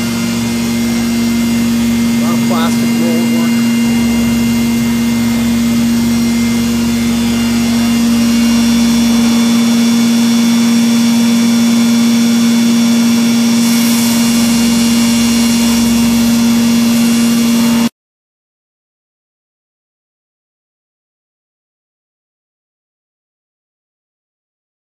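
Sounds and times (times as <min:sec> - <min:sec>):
machining center humming and whining: 0:00.0 - 0:17.9.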